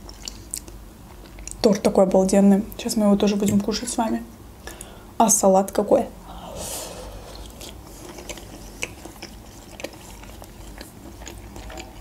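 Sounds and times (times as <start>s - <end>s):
person chewing: 0.0s - 1.6s, 7.0s - 12.0s.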